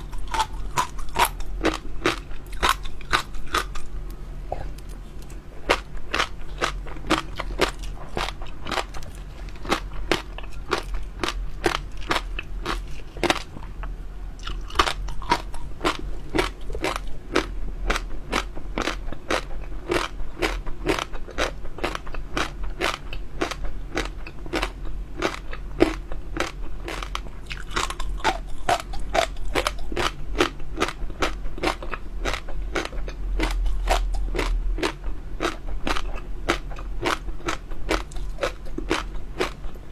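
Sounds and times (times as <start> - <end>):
chewing crunchy pearls: 0.0 - 39.8.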